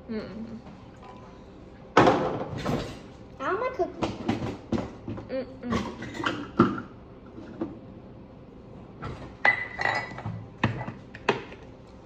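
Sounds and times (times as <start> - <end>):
dishes and utensils clinking: 9.1 - 11.3.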